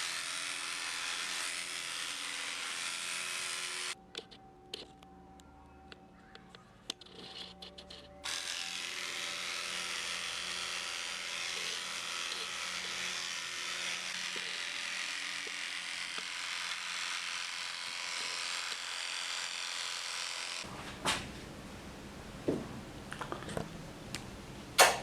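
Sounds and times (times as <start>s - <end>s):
electric clippers buzzing: 0.0s - 4.0s, 8.2s - 22.5s.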